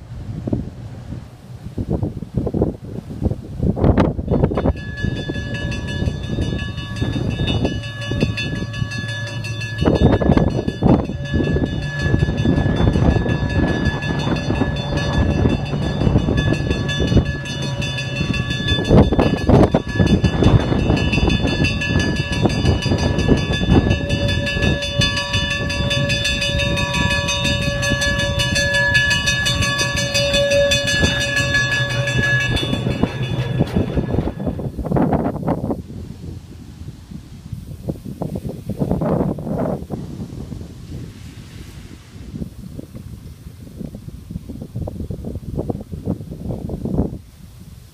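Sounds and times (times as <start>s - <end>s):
train engine hum: 0.0s - 47.9s
steady high-pitched tones: 4.3s - 35.4s
wheels clacking over rail joints: 4.3s - 35.6s.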